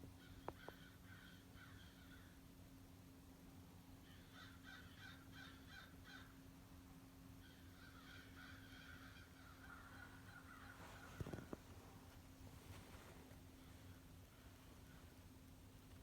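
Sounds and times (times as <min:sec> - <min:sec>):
crows cawing: 0:00.2 - 0:02.5, 0:04.0 - 0:06.5, 0:07.4 - 0:11.6.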